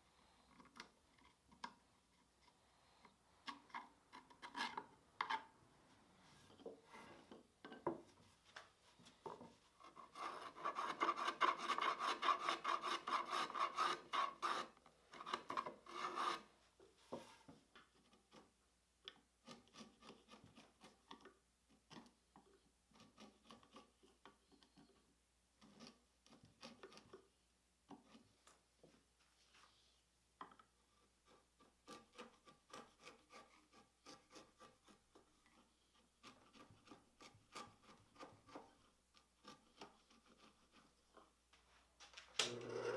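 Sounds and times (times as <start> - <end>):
hand tool rubbing on wood: 9.8 - 16.5, 31.2 - 41.1.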